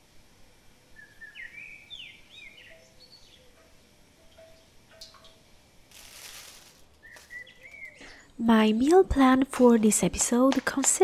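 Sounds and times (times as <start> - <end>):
faint birds chirping: 0.5 - 5.5, 6.1 - 8.4.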